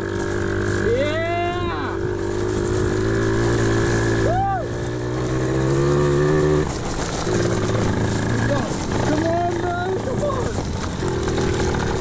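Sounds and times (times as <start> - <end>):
motorbike engine running under load: 0.0 - 12.0.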